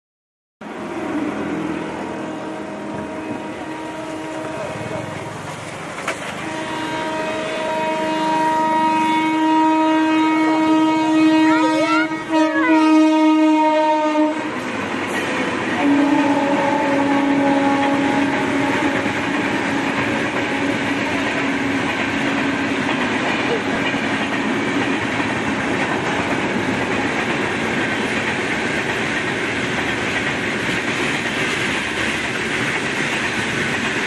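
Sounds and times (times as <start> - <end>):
train rumbling on rails: 0.6 - 34.0
locomotive horn blasts: 2.0 - 5.2, 6.4 - 14.6, 15.8 - 21.2.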